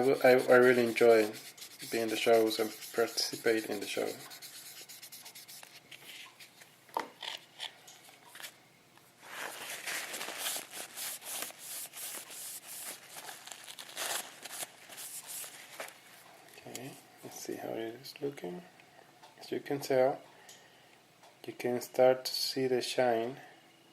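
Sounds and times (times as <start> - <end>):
sandpaper rubbing on plastic: 0.0 - 5.8, 10.3 - 13.2.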